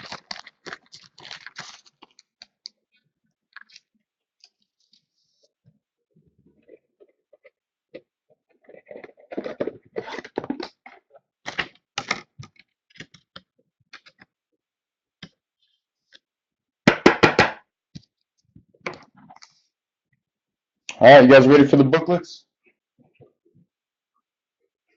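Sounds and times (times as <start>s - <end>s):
cards and plastic holders handled: 0.0s - 5.6s, 6.5s - 14.4s.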